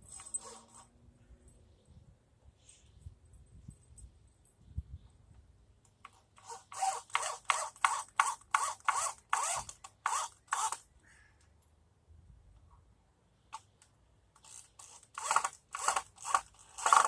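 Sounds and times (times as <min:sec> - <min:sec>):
hand saw cutting wood: 0:06.4 - 0:10.8, 0:14.4 - 0:17.0.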